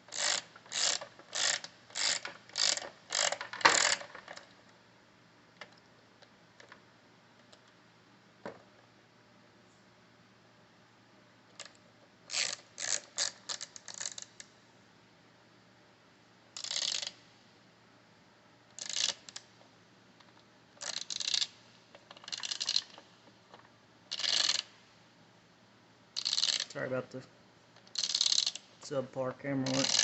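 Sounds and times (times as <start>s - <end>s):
socket ratchet clicking: 0.1s - 4.5s, 12.3s - 14.5s, 16.6s - 17.2s, 18.7s - 19.5s, 20.8s - 23.0s, 24.1s - 24.7s, 26.2s - 26.7s, 27.8s - 28.6s, 29.7s - 30.0s.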